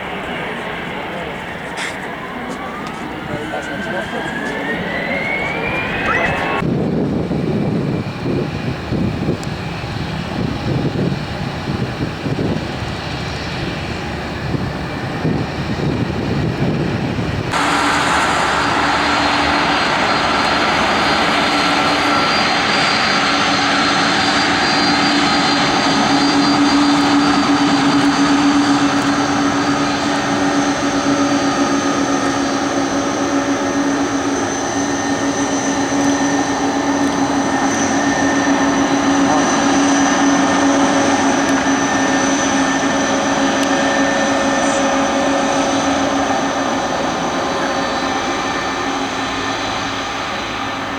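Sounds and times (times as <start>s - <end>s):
aircraft engines running: 0.0s - 50.9s
high engine whines: 0.0s - 50.9s.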